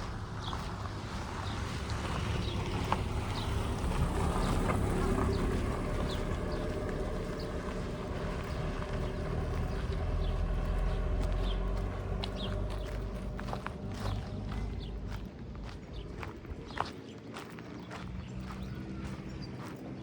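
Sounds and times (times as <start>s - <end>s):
small birds chirping: 0.0s - 20.0s
vehicle engine rumbling: 0.0s - 20.0s.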